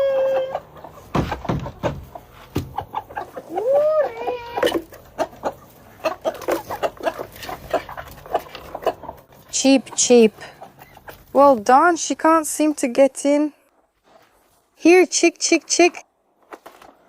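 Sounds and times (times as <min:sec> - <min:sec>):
chickens clucking: 0:00.0 - 0:12.4
rising then falling chicken call: 0:03.4 - 0:04.7.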